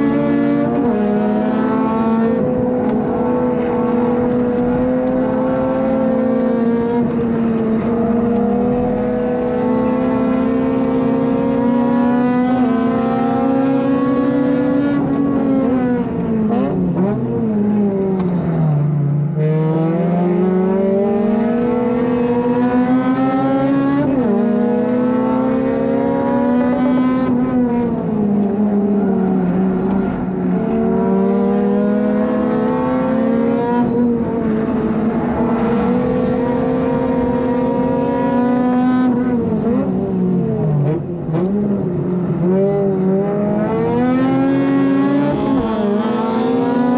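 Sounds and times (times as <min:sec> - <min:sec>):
car engine accelerating hard: 0:00.0 - 0:46.9.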